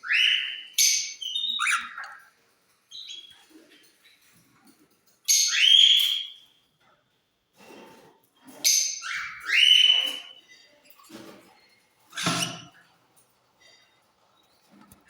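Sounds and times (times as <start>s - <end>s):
bird harsh shrill calls: 0.0s - 2.2s, 12.1s - 12.7s.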